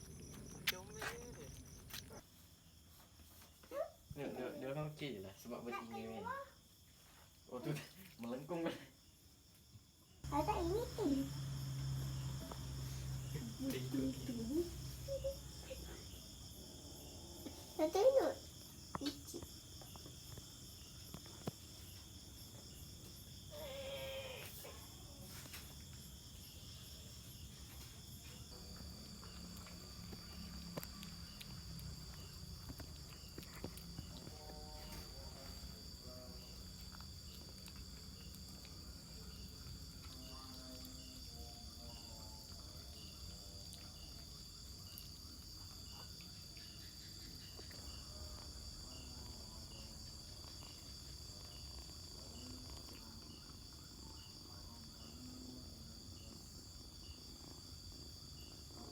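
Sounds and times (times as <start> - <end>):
faint regular insect chirp: 0.0 - 58.9
high-pitched insect drone: 22.6 - 24.8.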